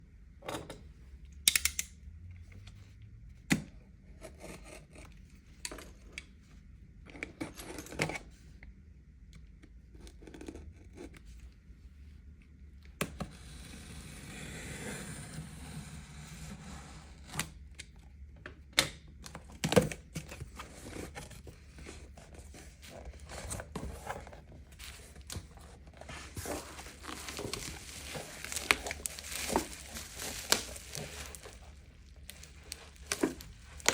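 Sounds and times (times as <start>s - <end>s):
wrapping rustling and tearing: 20.4s - 33.9s.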